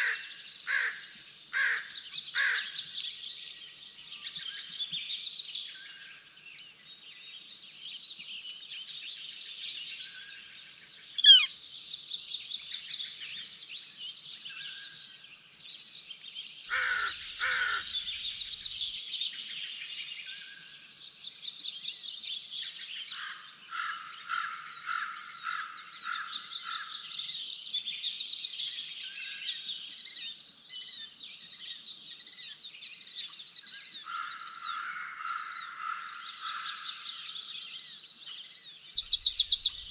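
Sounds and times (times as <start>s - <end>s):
songbirds singing and chirping: 0.0s - 39.9s
lower bird calls: 10.0s - 11.8s, 39.0s - 39.9s.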